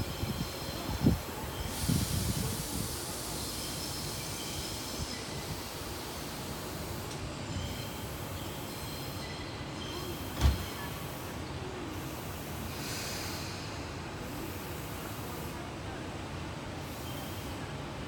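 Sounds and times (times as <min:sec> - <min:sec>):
short thump: 0:10.4 - 0:10.6.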